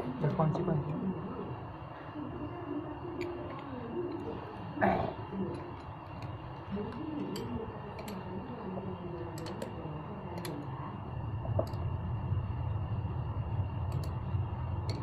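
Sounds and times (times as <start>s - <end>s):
faint low murmuring: 0.0s - 13.0s
hand tools clicking and tapping: 6.9s - 8.2s.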